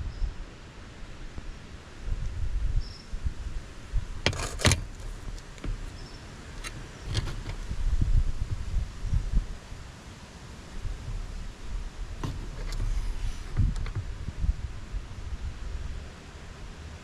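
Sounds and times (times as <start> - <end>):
wind buffeting microphone: 2.0 - 9.9, 10.7 - 16.1
sharp clicks and rattles: 4.2 - 7.7, 12.2 - 14.1.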